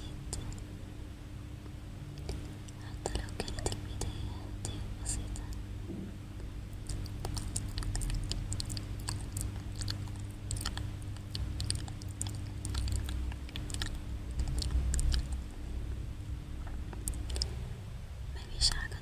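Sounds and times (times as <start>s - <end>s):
steady low hum: 0.0s - 19.0s
wet mouth clicks and smacks: 6.8s - 15.5s, 17.0s - 17.6s.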